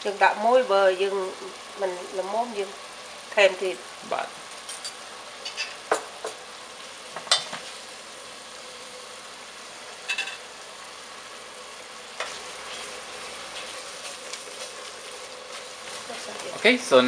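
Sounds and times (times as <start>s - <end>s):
paste sizzling in a pot: 0.0s - 17.0s
utensil scraping a pot: 12.2s - 16.3s.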